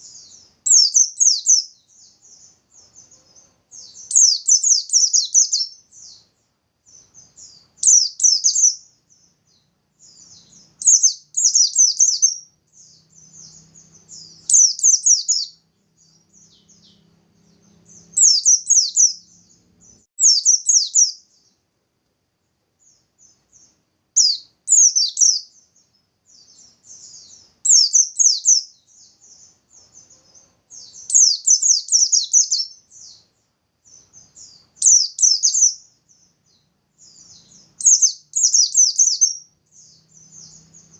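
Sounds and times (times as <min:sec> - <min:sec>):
soft bird twitters: 0:00.0 - 0:21.7, 0:22.8 - 0:40.9.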